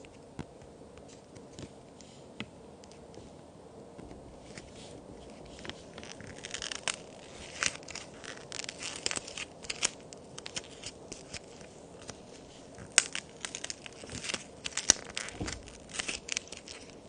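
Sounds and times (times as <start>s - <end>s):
plaster cookies cracking and crumbling: 4.4s - 17.0s.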